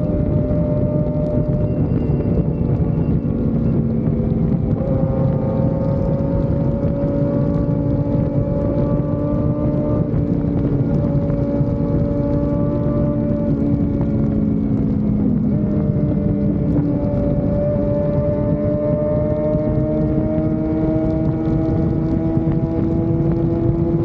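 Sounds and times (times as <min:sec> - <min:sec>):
motorcycle engine cruising: 0:00.0 - 0:24.0
wind rushing over microphone: 0:00.0 - 0:24.0.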